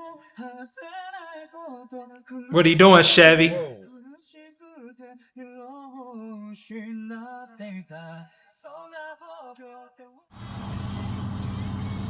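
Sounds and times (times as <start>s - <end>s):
person singing quietly: 2.5s - 3.8s.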